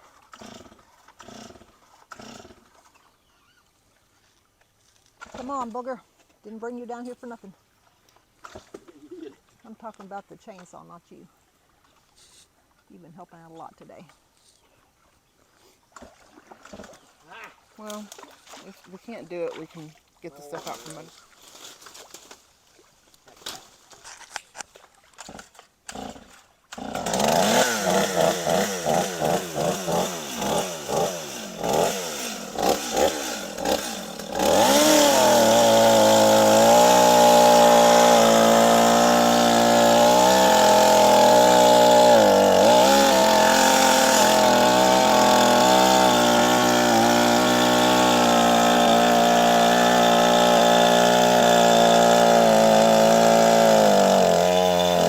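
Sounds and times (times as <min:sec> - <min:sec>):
chainsaw engine starting and running: 0:00.0 - 0:02.9, 0:25.2 - 0:55.0.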